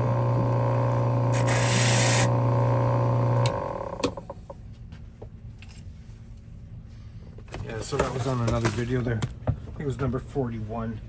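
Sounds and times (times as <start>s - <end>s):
machine hum: 0.0s - 4.6s.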